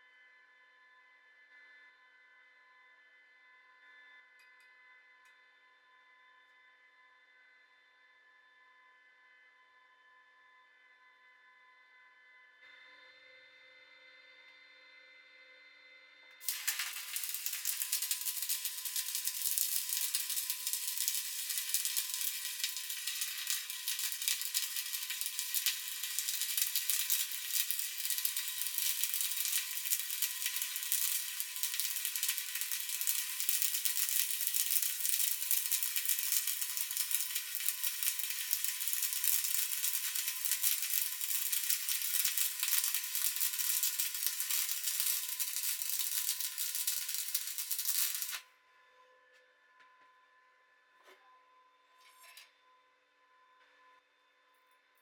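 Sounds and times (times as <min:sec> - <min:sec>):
welding arc crackling: 0:16.4 - 0:48.4.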